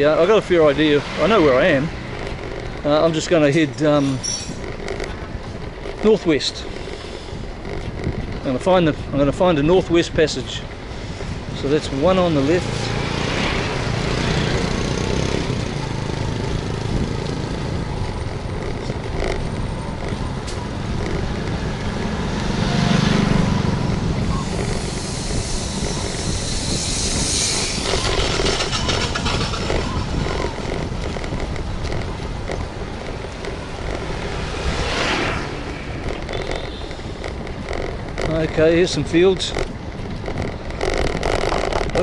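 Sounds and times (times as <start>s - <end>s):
street traffic: 0.0s - 42.0s
vehicles passing: 0.0s - 42.0s
wind noise: 0.0s - 42.0s
low rumble: 15.2s - 38.6s.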